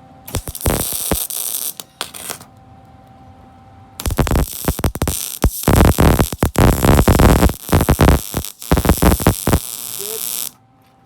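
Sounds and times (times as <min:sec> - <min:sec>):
faint steady hum: 0:00.0 - 0:11.0
welding arc crackling: 0:00.3 - 0:02.5, 0:04.0 - 0:10.6.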